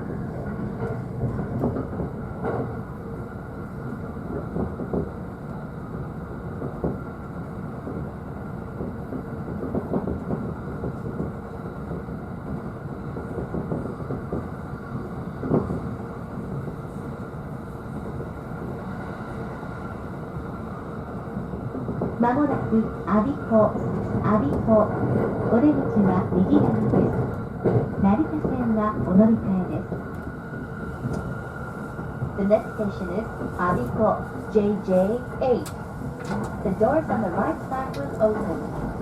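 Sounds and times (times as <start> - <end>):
train rumble: 0.0 - 39.0
rail-joint clicks: 0.4 - 2.8, 21.7 - 30.4, 31.0 - 31.3, 35.1 - 39.0.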